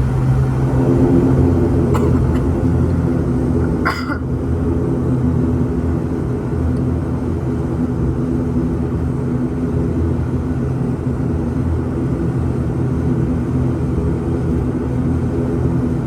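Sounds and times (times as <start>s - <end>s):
turboprop engines droning: 0.0s - 16.0s.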